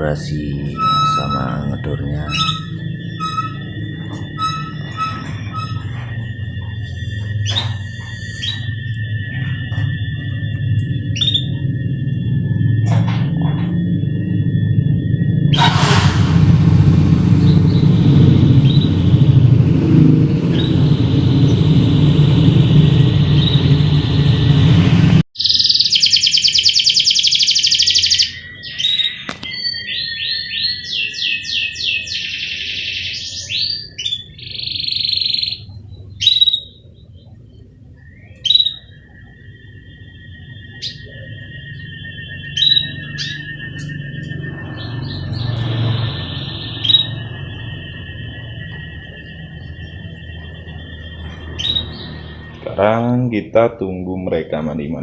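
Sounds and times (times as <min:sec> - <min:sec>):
canaries trilling and chirping: 0:00.0 - 0:14.7, 0:17.4 - 0:19.0, 0:23.3 - 0:23.9, 0:25.4 - 0:53.3
loud even rushing noise: 0:11.5 - 0:25.2.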